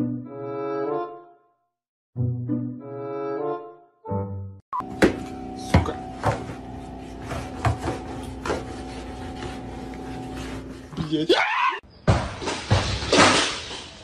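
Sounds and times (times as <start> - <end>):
electrical hum: 4.8 - 11.3.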